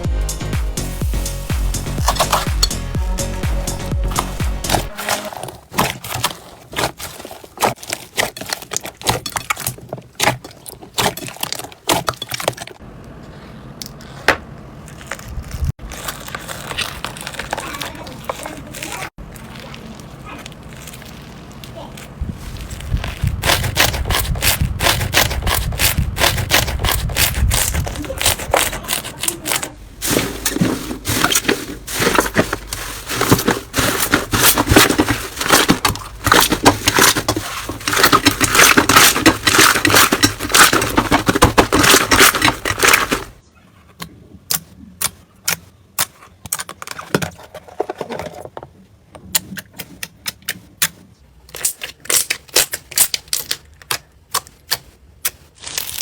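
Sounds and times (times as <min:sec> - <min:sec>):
slime crackling and popping: 0:14.8 - 0:30.2, 0:51.5 - 0:56.0.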